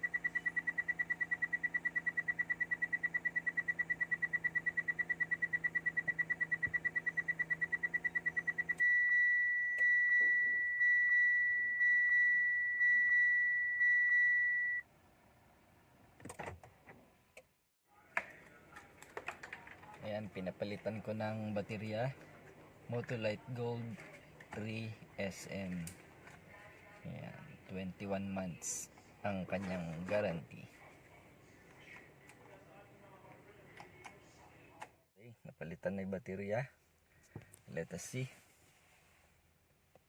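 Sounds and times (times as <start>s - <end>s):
dashboard warning buzzer beeps: 0.0s - 14.8s.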